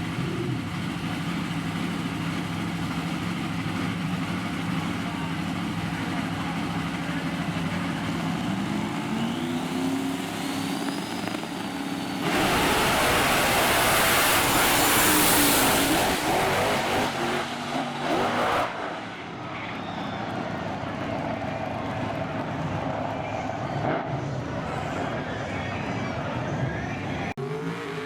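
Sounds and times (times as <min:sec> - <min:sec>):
truck engines revving: 0:00.0 - 0:28.0
truck launching at full throttle: 0:08.2 - 0:19.3.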